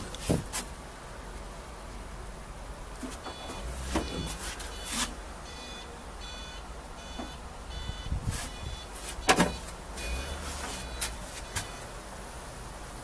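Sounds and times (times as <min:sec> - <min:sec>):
diesel engine running: 0:02.4 - 0:13.0
reversing alarm beeping: 0:03.3 - 0:11.9.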